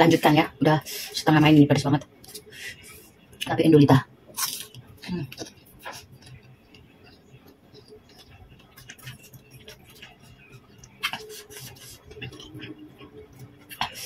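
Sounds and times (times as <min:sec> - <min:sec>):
chewing crunchy fruit: 0:04.3 - 0:14.0.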